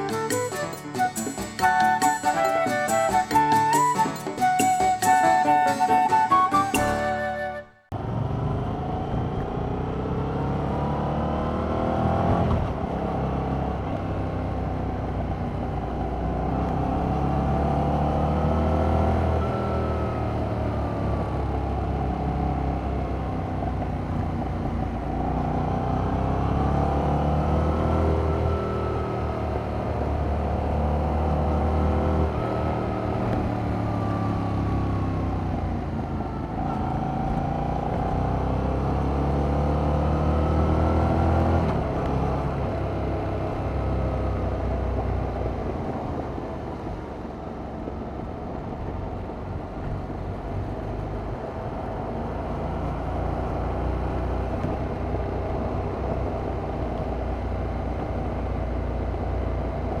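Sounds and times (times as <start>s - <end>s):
road noise: 0.0s - 60.0s
motorcycle engine revving: 8.0s - 46.4s.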